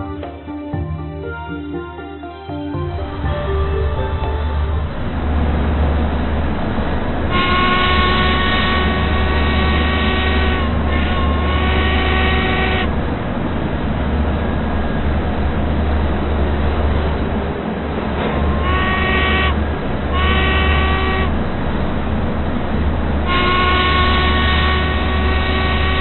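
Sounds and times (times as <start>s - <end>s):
train rumbling: 0.0s - 26.0s
train horn: 7.3s - 13.0s, 18.4s - 21.4s, 23.2s - 26.0s.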